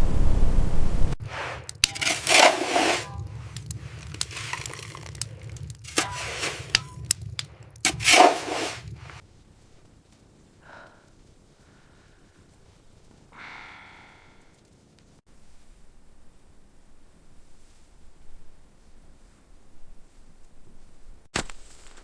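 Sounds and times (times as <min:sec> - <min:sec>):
wind noise: 0:00.0 - 0:01.2
sharp cracks and scraping: 0:01.2 - 0:10.5, 0:19.5 - 0:22.0.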